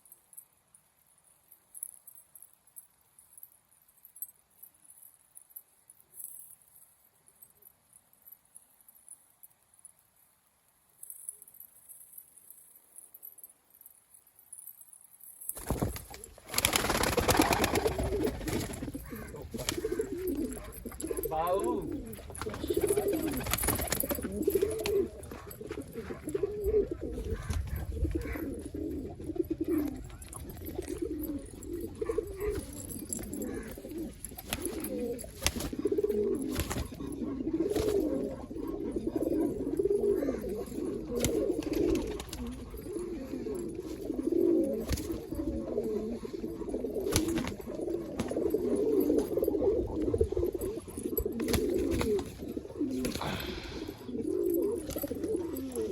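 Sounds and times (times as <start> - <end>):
pigeons cooing: 15.7 - 55.9.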